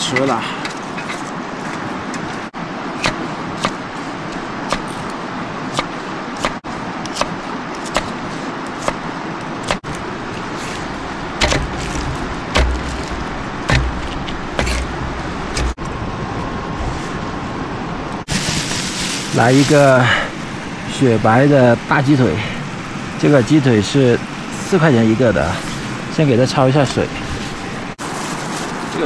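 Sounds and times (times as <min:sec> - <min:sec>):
wood fire crackling: 0:02.9 - 0:16.4, 0:18.2 - 0:29.0
low thumps: 0:11.4 - 0:15.8.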